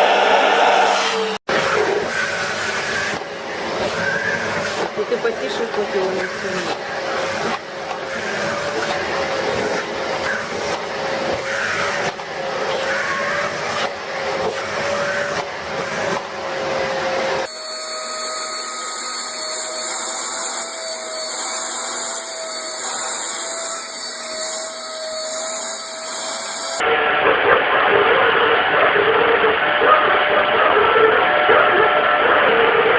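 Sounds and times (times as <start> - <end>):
vacuum cleaner high whine: 0.0 - 32.6
vacuum cleaner motors running: 1.5 - 27.2.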